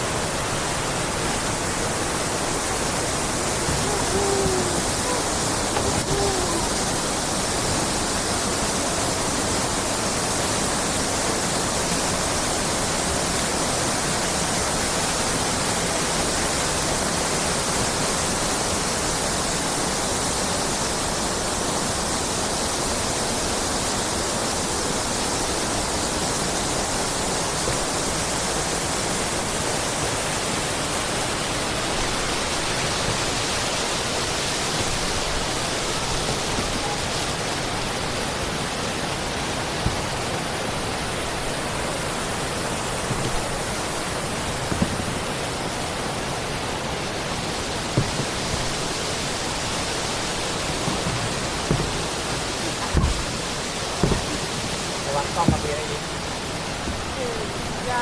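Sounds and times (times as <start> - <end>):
faint short pitched sounds: 3.6 - 6.9.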